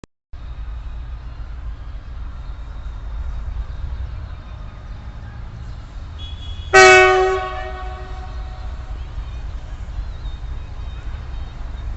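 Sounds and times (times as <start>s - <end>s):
locomotive horn blaring: 6.2s - 9.2s.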